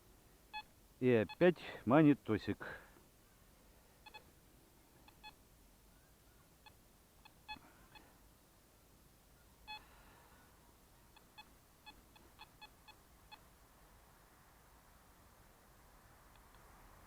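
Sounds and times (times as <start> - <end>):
metal detector beeps: 4.0 - 4.3, 5.0 - 5.4, 9.7 - 9.9.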